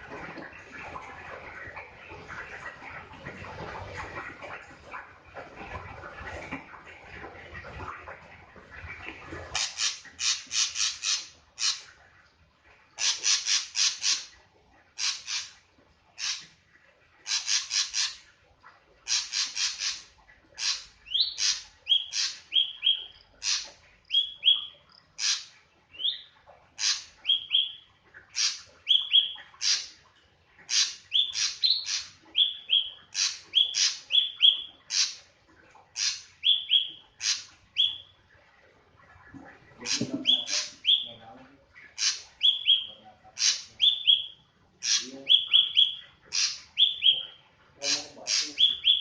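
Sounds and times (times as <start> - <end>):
bird calling with falling whistles: 36.4 - 37.0, 37.8 - 38.1, 40.2 - 41.2, 42.4 - 43.0, 43.8 - 46.0, 46.8 - 47.4, 48.4 - 49.0.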